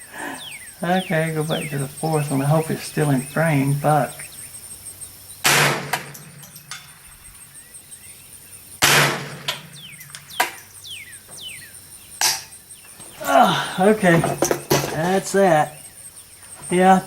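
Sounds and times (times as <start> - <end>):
rifle shots: 5.4 - 6.2, 8.8 - 9.6.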